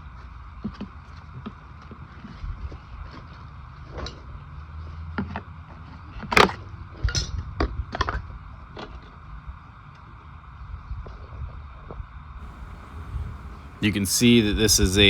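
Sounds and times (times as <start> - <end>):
low background rumble: 12.5 - 15.0.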